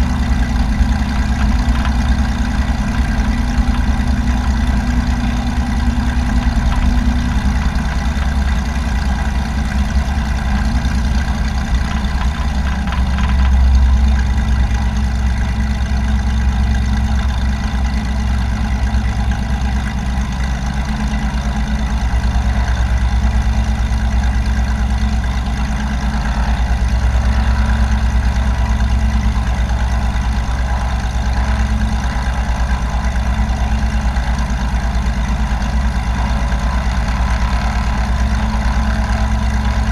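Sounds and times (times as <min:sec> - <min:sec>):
light aircraft engine drone: 0:00.0 - 0:39.9.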